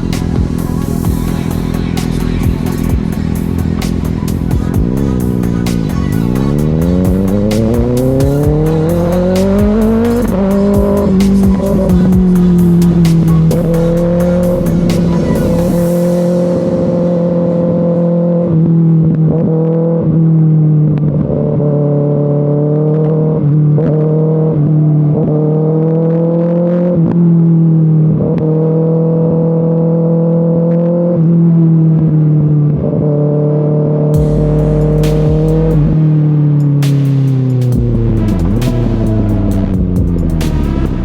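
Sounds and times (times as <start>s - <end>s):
motorcycle engine running: 0.0s - 19.5s, 34.2s - 41.0s.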